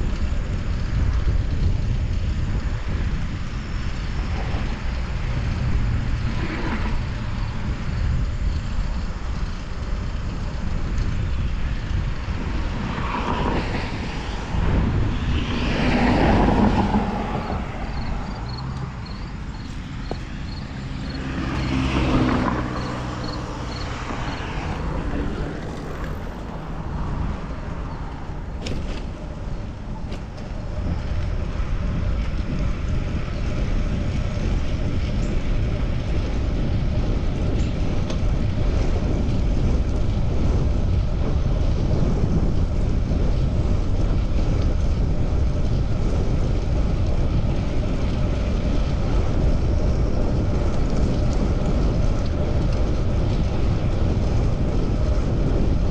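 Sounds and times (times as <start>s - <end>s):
road and traffic noise: 0.0s - 55.9s
wind rumbling on microphone: 0.0s - 55.9s
vehicle passing: 4.0s - 8.3s, 11.0s - 41.9s.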